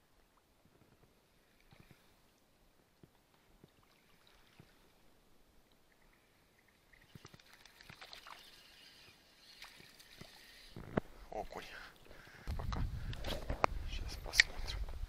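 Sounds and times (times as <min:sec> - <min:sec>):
small clicks and rustling: 0:07.0 - 0:11.1.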